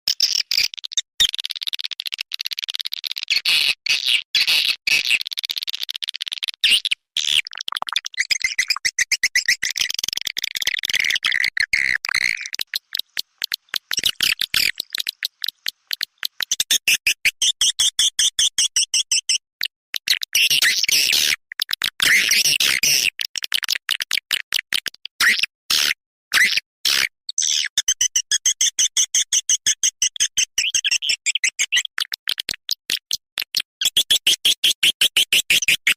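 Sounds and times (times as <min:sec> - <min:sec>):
swiftlet twittering chirps: 0:10.9 - 0:16.9.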